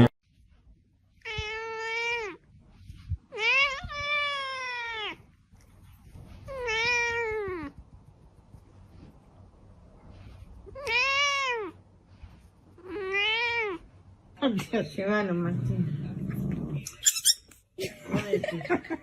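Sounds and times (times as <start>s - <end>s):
cat meowing: 1.2s - 2.4s, 3.3s - 5.2s, 6.4s - 7.8s, 10.6s - 11.8s, 12.8s - 13.9s.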